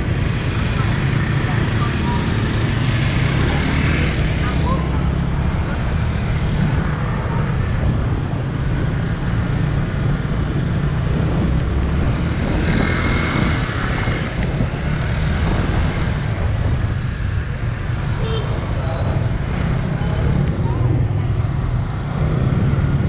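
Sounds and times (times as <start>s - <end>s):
wind buffeting microphone: 4.6s - 23.0s.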